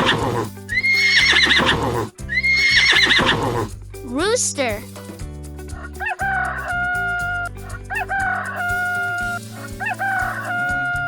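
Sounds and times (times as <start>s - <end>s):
light background music: 0.0s - 11.0s
rooster crowing: 5.8s - 11.0s.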